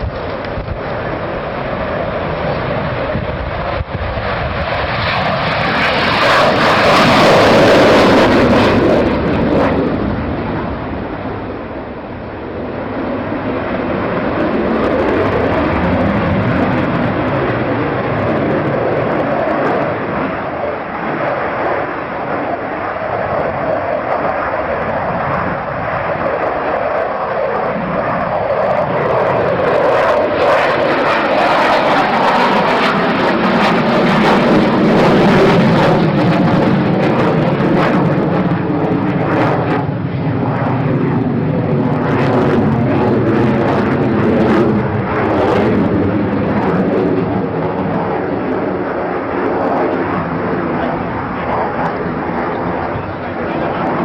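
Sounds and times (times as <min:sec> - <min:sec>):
aircraft flying past: 0:00.0 - 0:54.0.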